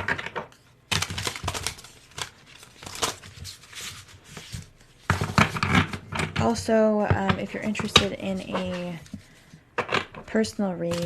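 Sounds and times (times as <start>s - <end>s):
cards shuffling: 7.2s - 11.0s.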